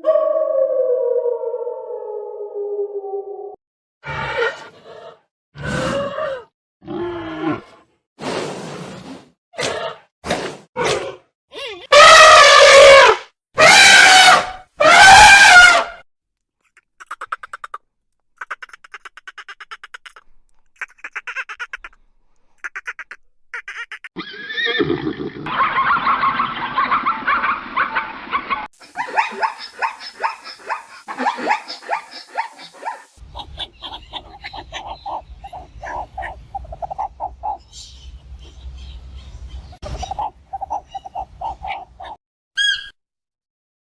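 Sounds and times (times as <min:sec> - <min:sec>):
rapid stuttering animal calls: 0:16.7 - 0:17.8, 0:18.4 - 0:24.5, 0:29.0 - 0:37.7, 0:39.7 - 0:42.2.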